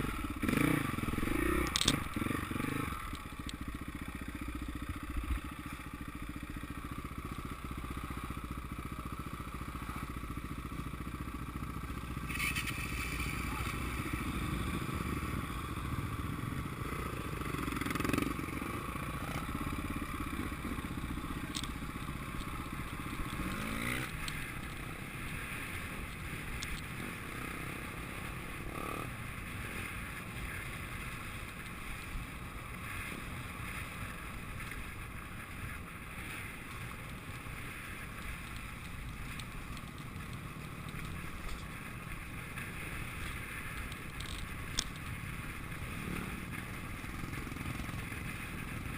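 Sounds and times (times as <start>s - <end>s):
dirt bike engine revving: 0.0s - 3.1s, 23.0s - 30.0s
dirt bike engines running: 0.0s - 48.9s.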